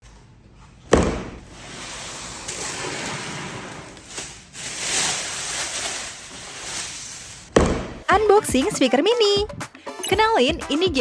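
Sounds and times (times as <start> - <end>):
sharp knock: 0.9 - 1.4, 7.6 - 8.1
packaging rubbing and rustling: 1.0 - 8.1.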